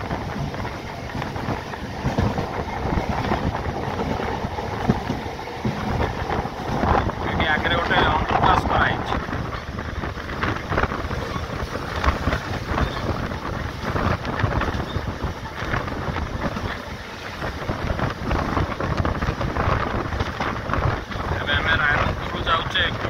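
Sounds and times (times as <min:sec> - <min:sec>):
electric train running: 0:00.0 - 0:23.0
wind on microphone: 0:00.0 - 0:23.0.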